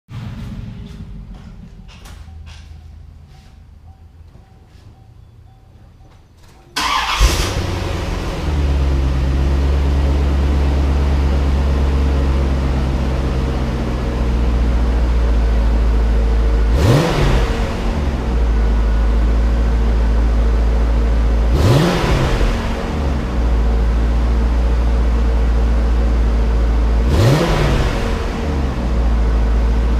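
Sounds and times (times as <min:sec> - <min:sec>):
car engine revving: 0:00.1 - 0:02.7, 0:06.8 - 0:29.9
car engine idling: 0:00.1 - 0:04.4, 0:06.4 - 0:29.9
car engine cranking and starting: 0:06.4 - 0:29.9.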